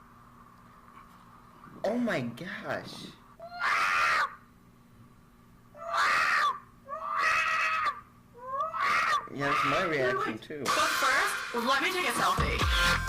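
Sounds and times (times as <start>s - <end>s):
cat yowling: 3.4s - 4.4s, 5.8s - 10.4s.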